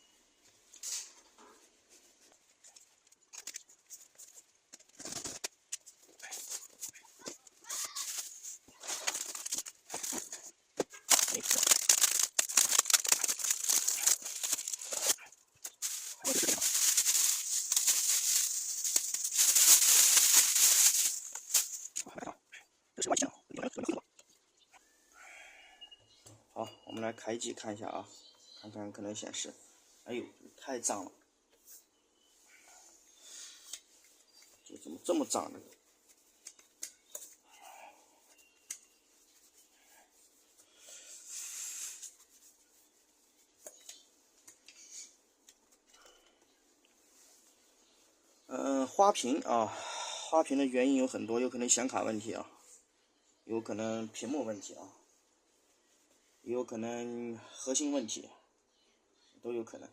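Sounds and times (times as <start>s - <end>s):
hands handling laptop parts: 2.2s - 22.0s
plastic wrapping crinkling: 2.6s - 22.1s
hissing rub: 39.0s - 43.6s.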